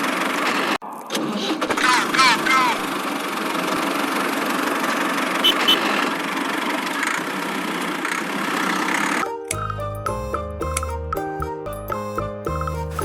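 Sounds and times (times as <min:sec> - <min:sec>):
music: 0:09.2 - 0:13.0.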